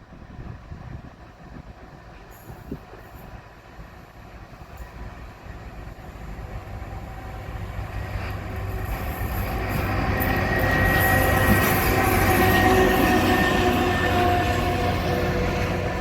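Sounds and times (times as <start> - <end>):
train rumble and rail noise: 0.0 - 16.0
high wheel squeal: 9.0 - 15.2.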